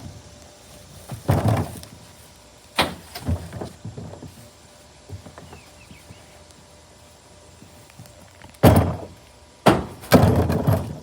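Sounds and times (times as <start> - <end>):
plastic trash can thumping: 8.6 - 11.0.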